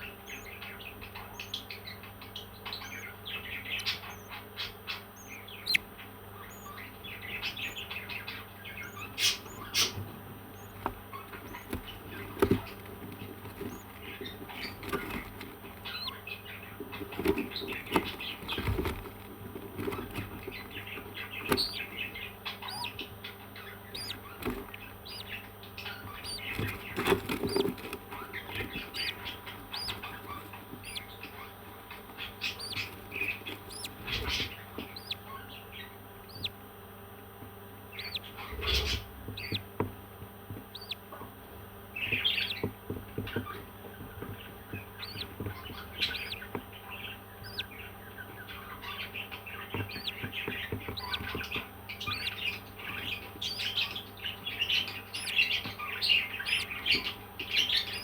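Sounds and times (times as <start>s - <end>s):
parrots chirping and squawking: 8.1s - 36.5s, 37.9s - 39.6s, 40.7s - 41.0s, 45.0s - 58.0s.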